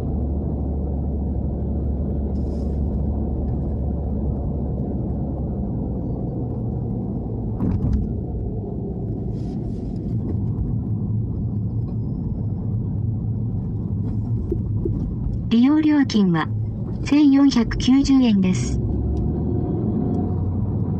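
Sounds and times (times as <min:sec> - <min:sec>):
car engine and road rumble: 0:00.0 - 0:20.9.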